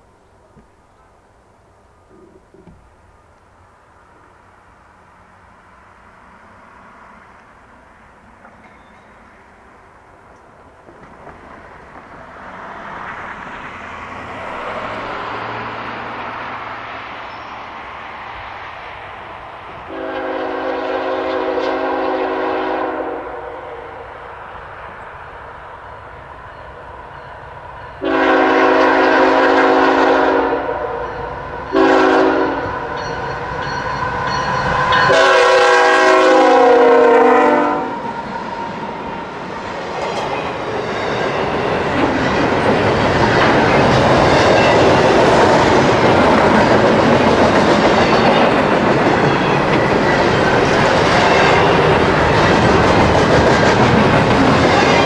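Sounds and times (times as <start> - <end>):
freight cars rumbling on rails: 4.2 - 55.0
locomotive air horn blasts: 19.9 - 23.9, 28.0 - 32.8, 34.9 - 38.2.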